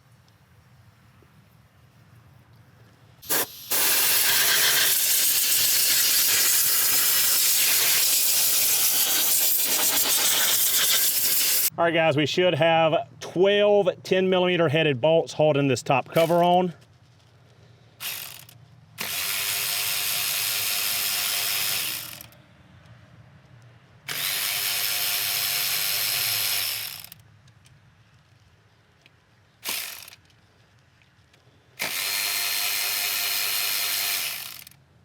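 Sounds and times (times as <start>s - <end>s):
power ratchet running: 3.2s - 11.7s, 16.2s - 16.5s, 18.0s - 22.4s, 24.1s - 27.2s, 29.6s - 30.3s, 31.8s - 34.8s.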